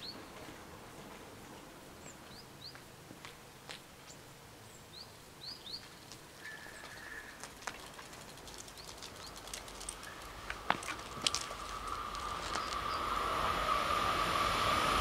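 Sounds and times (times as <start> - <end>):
small birds chirping: 2.0 - 2.9, 4.0 - 13.1
faint clicks: 6.8 - 12.9.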